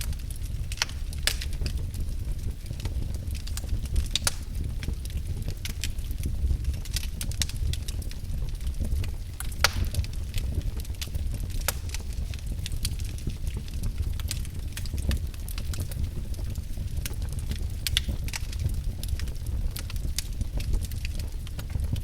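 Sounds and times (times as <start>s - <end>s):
wood fire crackling: 0.0s - 22.0s
sharp pop of fire: 0.7s - 1.7s, 3.6s - 4.7s, 9.4s - 10.2s, 10.8s - 12.4s.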